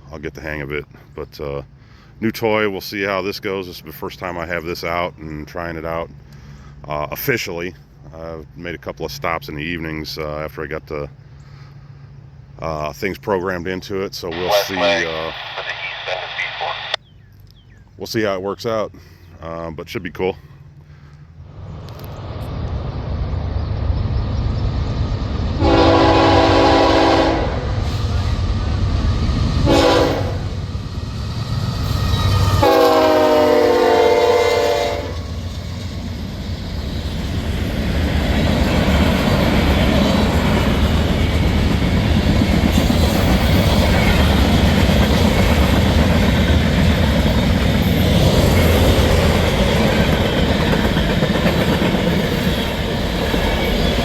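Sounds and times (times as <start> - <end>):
freight train rumbling on rails: 20.9 - 54.0
locomotive air horn blasts: 25.6 - 27.9, 29.6 - 30.6, 32.5 - 35.2.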